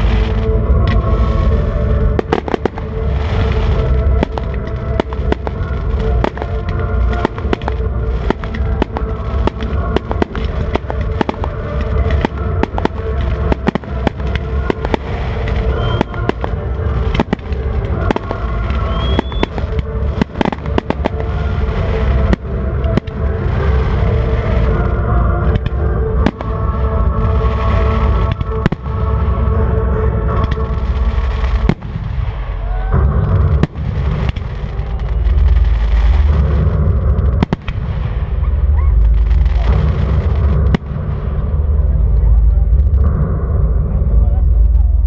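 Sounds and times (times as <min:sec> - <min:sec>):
deep booming: 0:00.0 - 0:45.0
fireworks bangs and crackling: 0:00.0 - 0:45.0
music over loudspeakers: 0:00.0 - 0:45.0
short rising whistles: 0:18.8 - 0:19.5.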